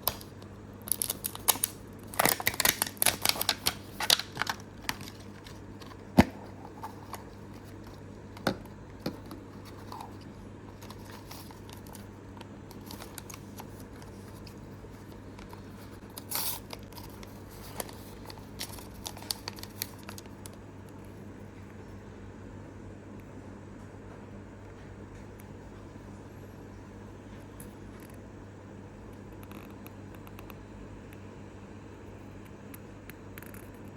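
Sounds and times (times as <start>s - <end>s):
faint steady hum: 0.0s - 33.9s
wrapping rustling and tearing: 0.9s - 8.3s, 9.2s - 12.1s, 12.7s - 20.6s.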